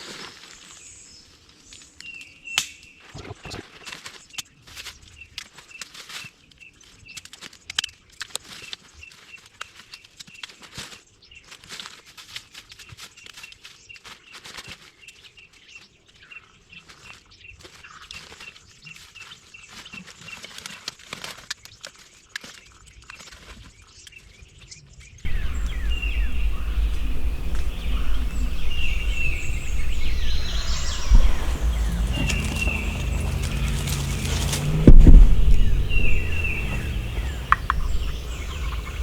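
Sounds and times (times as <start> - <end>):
light crackles: 25.3 - 39.0
songbirds chirping: 25.3 - 39.0
steady low rumble: 25.3 - 39.0.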